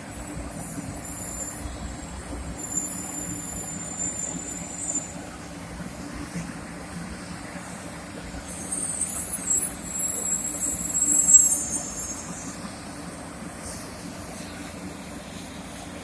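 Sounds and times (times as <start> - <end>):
high-pitched brake squeal: 0.0 - 5.4, 8.4 - 12.8
train rumbling: 0.0 - 16.0.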